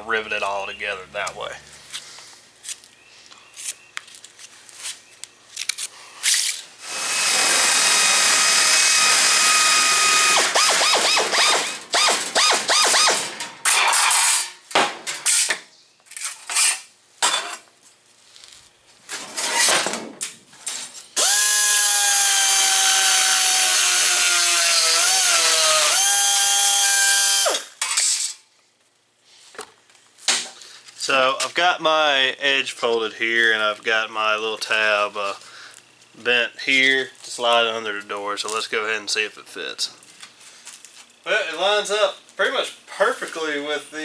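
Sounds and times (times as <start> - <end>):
power tool cutting sheet metal: 6.8 - 14.4, 21.2 - 28.2.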